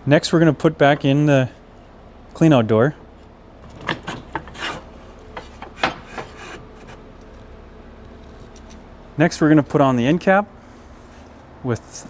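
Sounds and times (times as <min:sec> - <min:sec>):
low background hum: 0:00.0 - 0:12.0
parts scraping against housing: 0:03.6 - 0:07.5.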